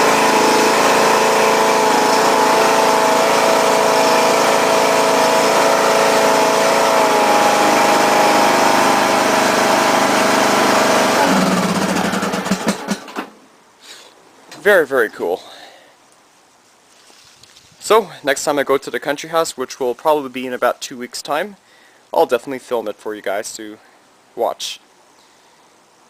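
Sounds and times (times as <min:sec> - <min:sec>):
lawn tractor engine running: 0:00.0 - 0:13.4.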